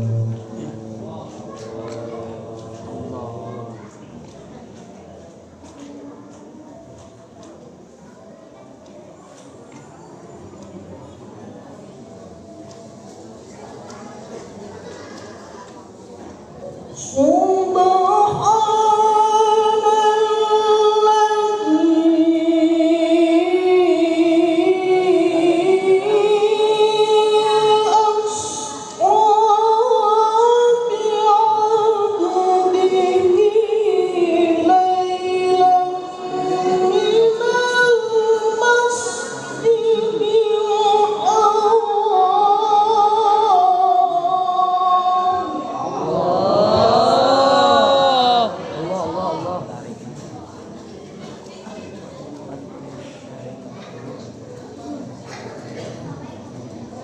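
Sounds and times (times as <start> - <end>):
person chanting melodically: 0.0 - 3.7, 42.2 - 50.0.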